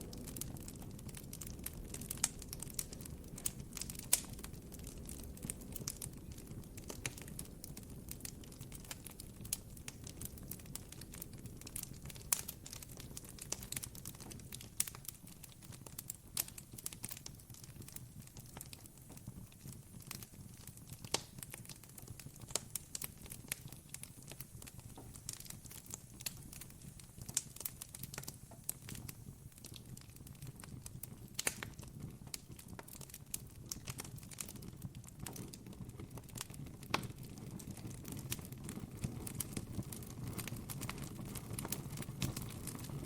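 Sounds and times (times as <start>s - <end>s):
campfire crackling: 0.0s - 43.0s.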